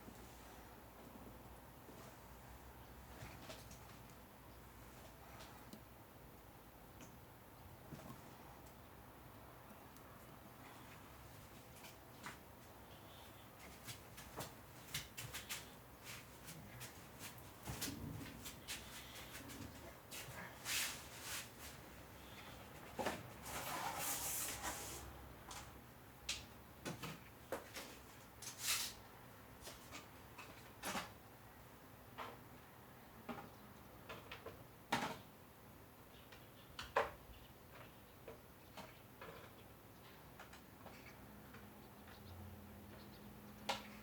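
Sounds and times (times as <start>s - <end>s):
rustling: 10.6s - 25.1s.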